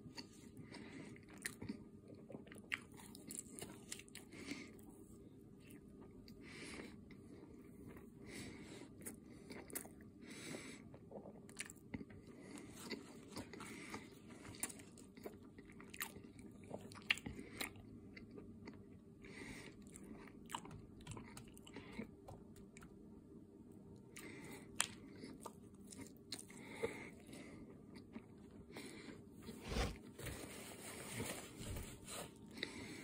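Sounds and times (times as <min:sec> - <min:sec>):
crunchy chewing: 0:10.9 - 0:22.9.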